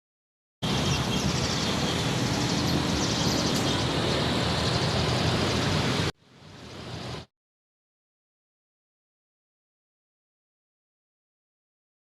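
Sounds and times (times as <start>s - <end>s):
passing vehicles rumble and hiss: 0.6s - 7.3s.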